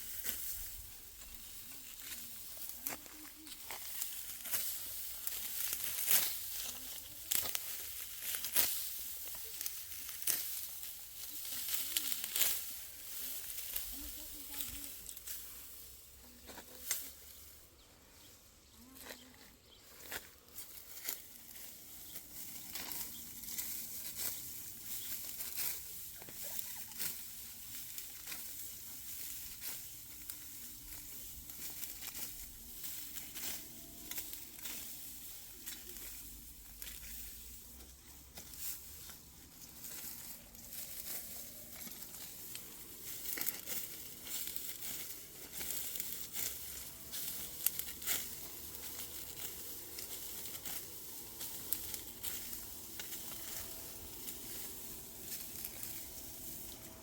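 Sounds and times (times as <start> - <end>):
dry rustling and crackling: 0.0 - 57.0.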